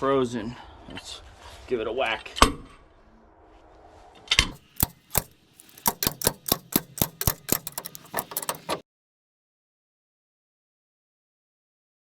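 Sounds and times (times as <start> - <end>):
hammer striking metal: 4.6 - 8.8.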